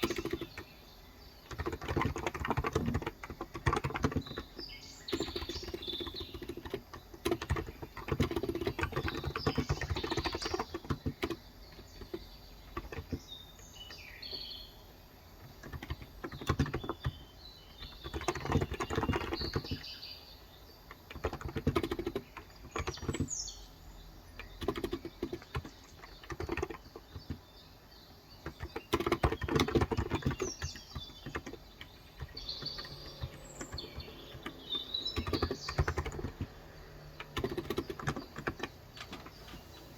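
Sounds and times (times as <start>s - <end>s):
keyboard typing: 0.0s - 0.8s, 1.4s - 14.4s, 15.4s - 20.0s, 20.8s - 23.6s, 24.2s - 27.7s, 28.4s - 39.9s
birds chirping: 0.0s - 39.9s.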